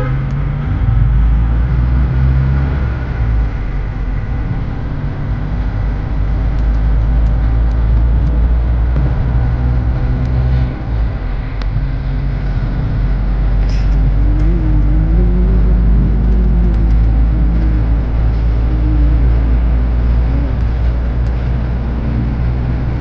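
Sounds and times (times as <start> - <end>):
vehicle engine and road rumble: 0.0 - 23.0
wavering rising pitch: 12.0 - 23.0.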